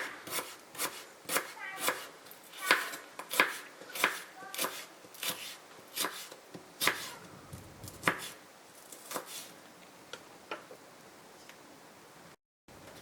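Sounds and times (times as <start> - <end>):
knife chopping on cutting board: 0.0 - 7.1, 8.0 - 8.4.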